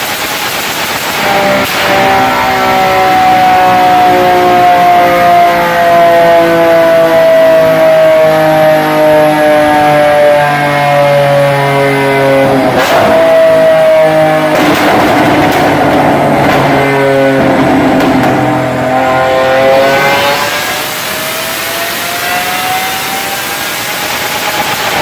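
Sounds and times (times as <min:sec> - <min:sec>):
sports car engine revving: 0:00.7 - 0:25.0
crackling exhaust pops: 0:12.4 - 0:13.7, 0:14.5 - 0:18.9.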